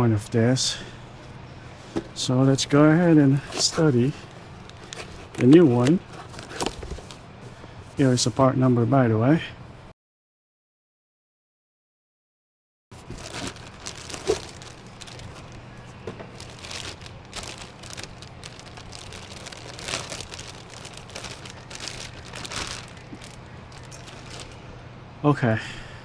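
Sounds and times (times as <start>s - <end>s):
low steady hum: 0.0s - 8.9s, 12.9s - 26.0s
crinkling and rustling handling: 1.1s - 8.4s, 12.9s - 24.7s.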